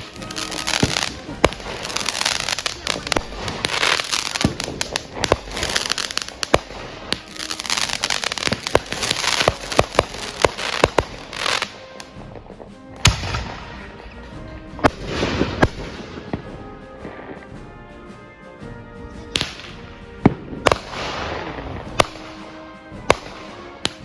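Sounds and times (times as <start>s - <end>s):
fireworks banging and crackling: 0.0s - 24.0s.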